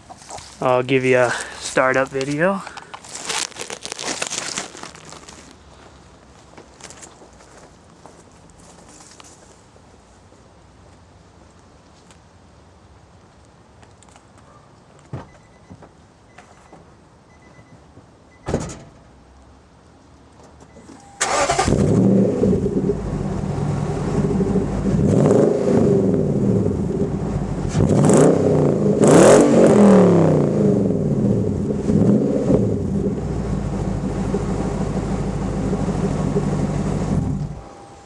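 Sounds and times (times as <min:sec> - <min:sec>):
truck engine starting and revving: 0:21.2 - 0:37.7.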